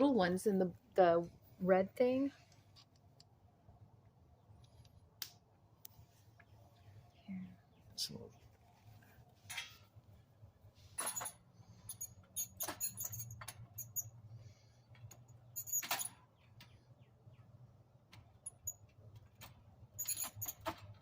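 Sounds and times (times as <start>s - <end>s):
faint low hum: 0.0s - 20.0s
metal tools clicking and scraping: 11.0s - 14.2s, 15.0s - 16.2s, 20.0s - 20.8s.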